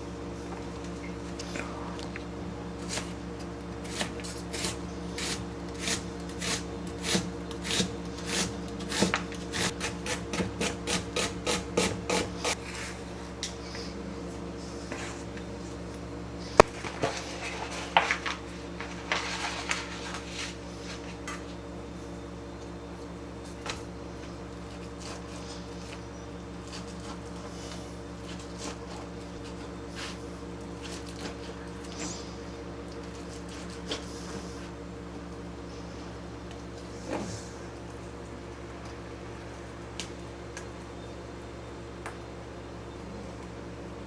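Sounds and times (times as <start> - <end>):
kitchen tool scraping food: 3.8 - 13.0.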